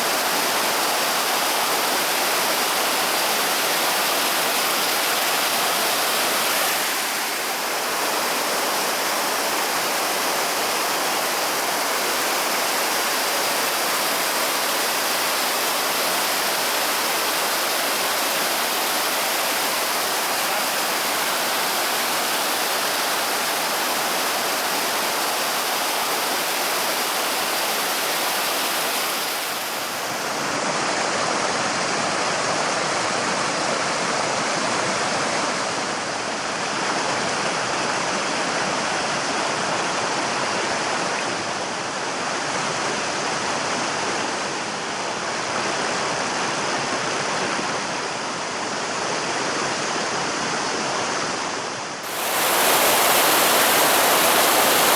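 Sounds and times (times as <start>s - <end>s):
stream water pouring over rocks: 0.0s - 30.6s, 52.0s - 54.9s.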